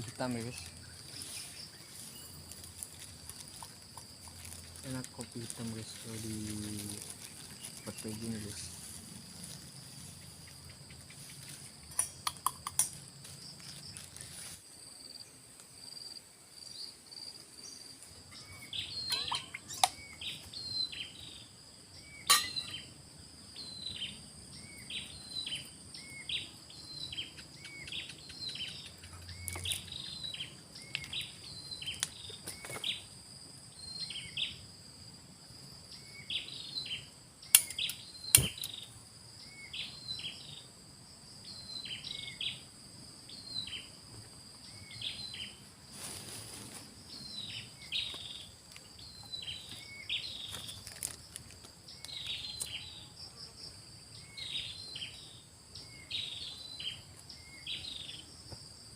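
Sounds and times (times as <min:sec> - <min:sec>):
insects droning: 0:00.0 - 0:58.9
bird call: 0:18.4 - 0:21.0
sharp clicks: 0:37.5 - 0:38.8.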